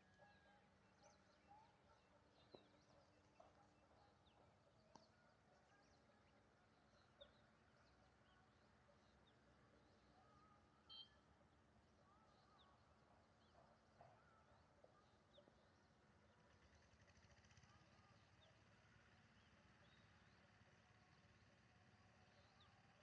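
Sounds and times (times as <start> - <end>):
faint bird chirps: 10.1 - 11.3.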